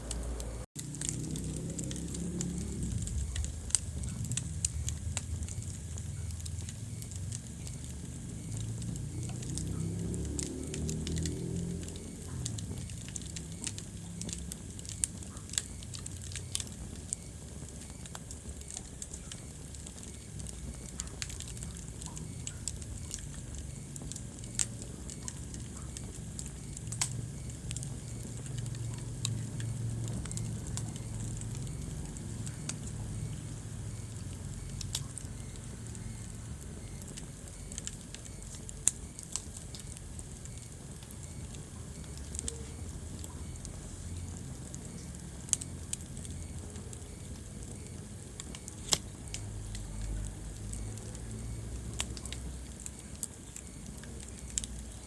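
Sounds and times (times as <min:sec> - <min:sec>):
fire crackling and popping: 0:00.0 - 0:55.0.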